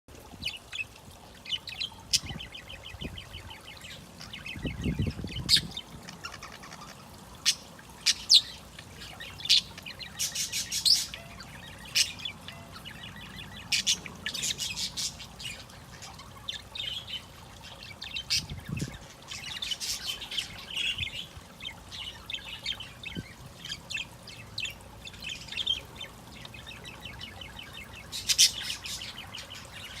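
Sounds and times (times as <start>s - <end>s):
budgerigar warbling and chattering: 1.5s - 8.5s.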